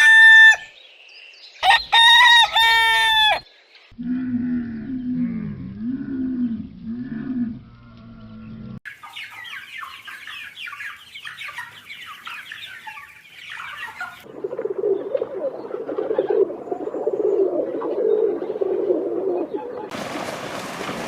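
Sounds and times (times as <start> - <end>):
birds chirping: 0.0 - 19.9
poultry clucking: 8.8 - 19.9.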